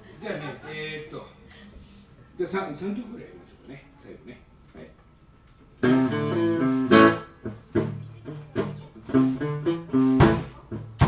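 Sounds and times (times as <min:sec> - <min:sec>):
electric guitar strumming chords: 0:05.8 - 0:11.0.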